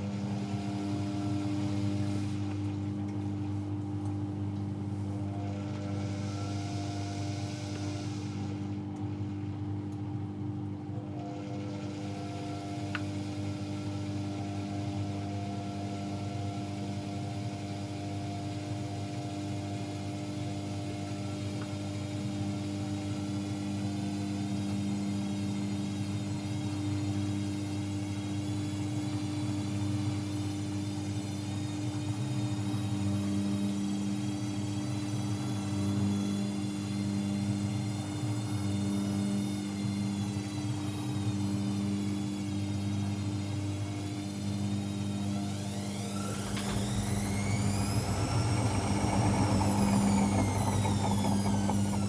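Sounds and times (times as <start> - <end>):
washing machine humming: 0.0 - 22.0, 31.8 - 52.0.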